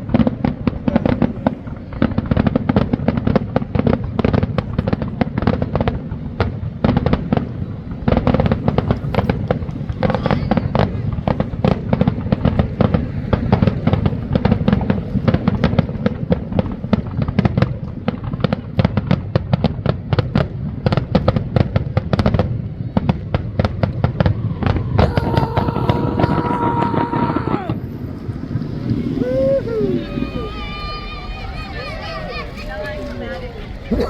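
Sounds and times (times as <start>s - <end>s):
fireworks crackling and popping: 0.0s - 34.0s
low rumble: 24.1s - 32.1s.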